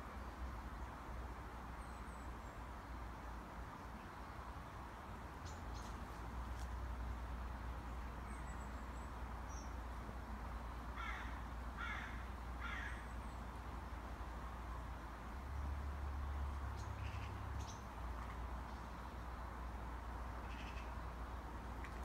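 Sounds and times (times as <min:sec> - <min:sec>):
bird crying: 0:11.0 - 0:13.1.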